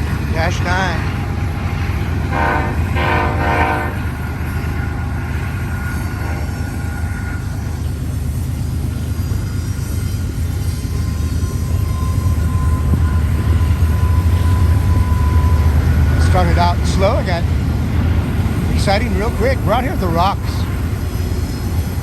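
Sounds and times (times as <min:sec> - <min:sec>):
freight train rumbling past: 0:00.0 - 0:22.0
train horn blast: 0:02.2 - 0:04.4, 0:05.9 - 0:07.7.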